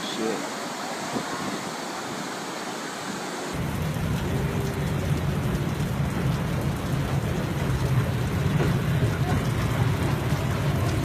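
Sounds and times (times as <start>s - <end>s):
heavy rain: 0.0s - 11.0s
deep steady rumble: 3.6s - 11.0s.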